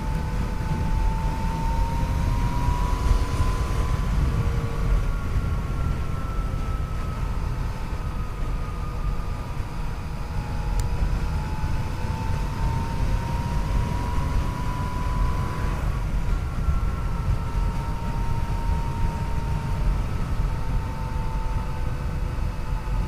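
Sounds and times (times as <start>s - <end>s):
motorcycle engine whine: 0.0s - 23.0s
wind on microphone: 0.0s - 23.0s.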